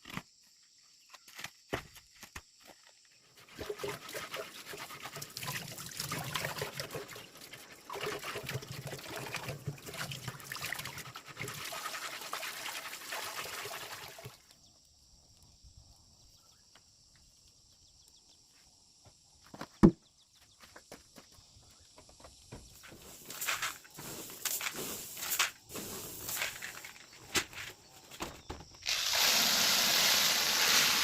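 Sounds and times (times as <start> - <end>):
water pouring and trickling: 3.4 - 14.5, 28.9 - 31.0.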